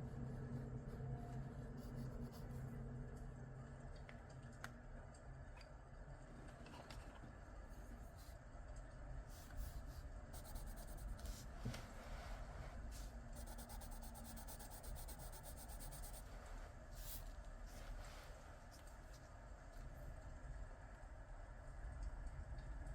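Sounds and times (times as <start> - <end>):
coloured pencil scratching on paper: 0.2 - 2.7, 9.4 - 11.5, 12.9 - 16.3.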